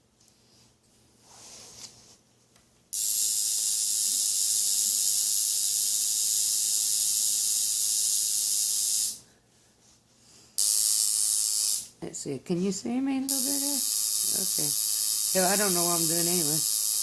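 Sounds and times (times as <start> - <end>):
tattoo machine buzzing: 2.9 - 9.2, 10.6 - 11.9, 13.3 - 17.0.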